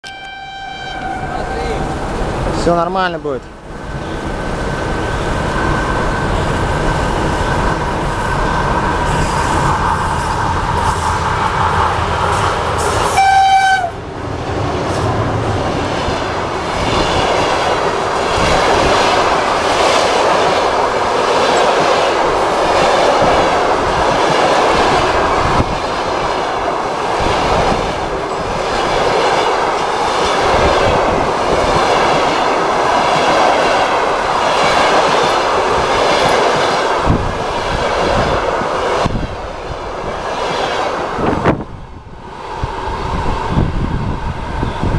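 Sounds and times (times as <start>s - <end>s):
train horn blast: 0.0s - 1.6s, 13.0s - 14.0s
train rumble: 0.1s - 44.9s.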